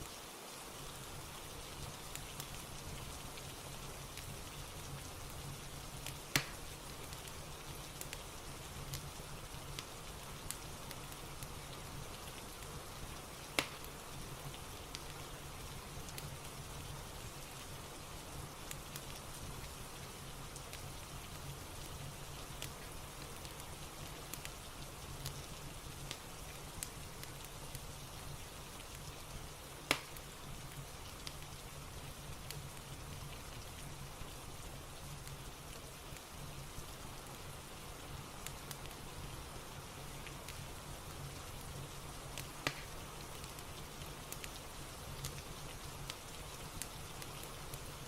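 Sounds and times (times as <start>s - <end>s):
fire crackling: 0.0s - 48.0s
steady rain: 0.0s - 48.0s
sharp crack: 6.3s - 6.6s, 13.6s - 13.9s, 29.9s - 30.2s, 42.6s - 42.9s.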